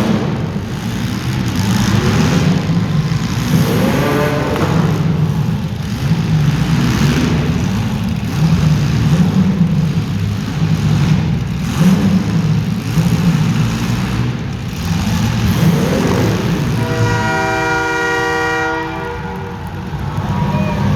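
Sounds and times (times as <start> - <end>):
car engines revving: 0.0 - 20.9
horn blast: 16.5 - 20.9.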